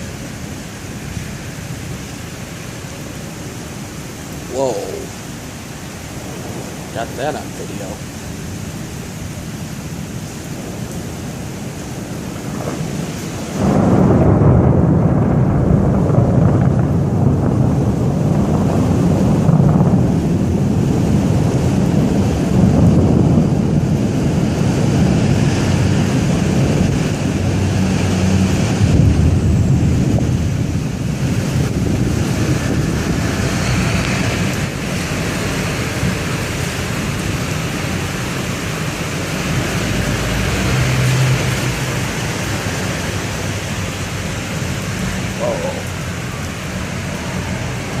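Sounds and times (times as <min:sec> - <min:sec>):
steady rain: 0:00.0 - 0:48.0
thunder rumbling: 0:00.0 - 0:48.0.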